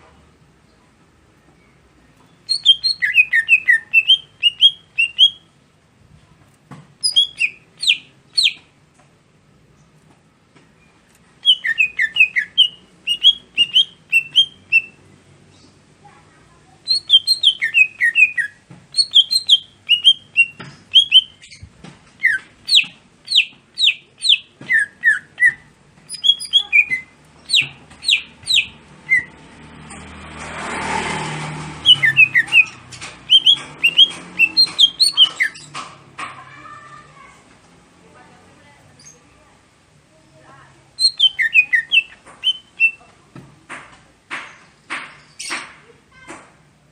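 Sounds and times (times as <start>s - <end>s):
bird chirping song: 0.7s - 5.5s, 7.0s - 8.7s, 10.8s - 15.8s, 16.8s - 30.1s, 31.8s - 35.9s, 41.0s - 43.1s.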